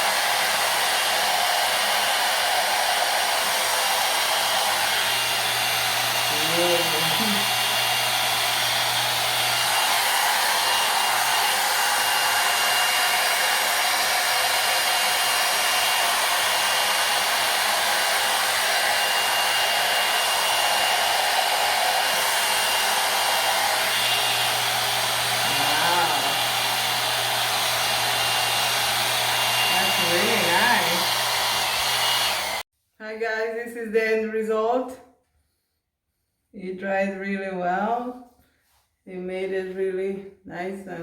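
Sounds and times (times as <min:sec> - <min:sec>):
hot-air brush hair dryer blowing: 0:00.0 - 0:32.7.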